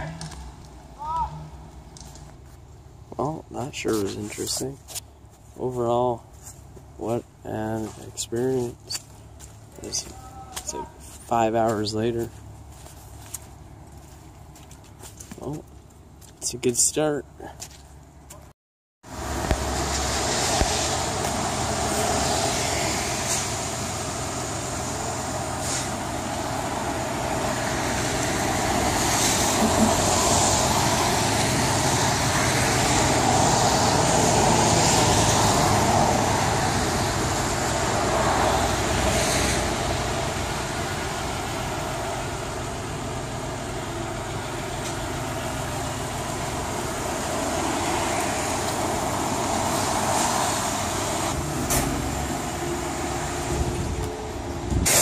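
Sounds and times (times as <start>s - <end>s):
car engine idling: 19.1s - 33.8s, 36.0s - 54.8s
traffic hiss on wet pavement: 19.1s - 54.2s, 54.8s - 55.0s.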